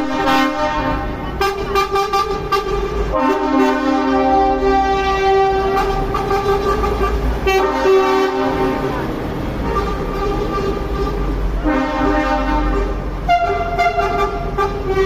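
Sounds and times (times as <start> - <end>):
truck air horn blasts: 0.0 - 15.0.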